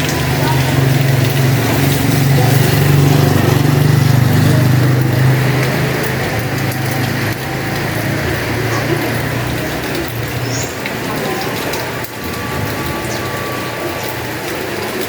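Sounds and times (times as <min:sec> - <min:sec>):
small engine running: 0:00.0 - 0:10.2
heavy rain: 0:00.0 - 0:15.0.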